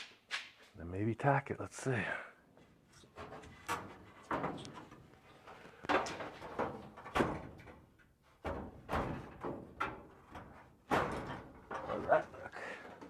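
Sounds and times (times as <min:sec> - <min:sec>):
knocks on sheet metal panels: 0:03.2 - 0:05.0, 0:05.9 - 0:12.3.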